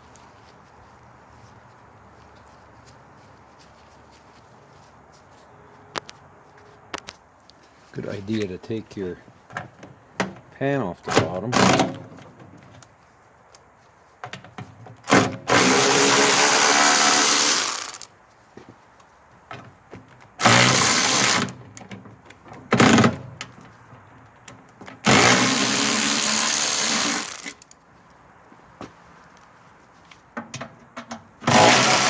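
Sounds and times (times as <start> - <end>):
power drill running: 15.1 - 18.1, 20.4 - 21.5, 25.1 - 27.7, 31.5 - 32.0.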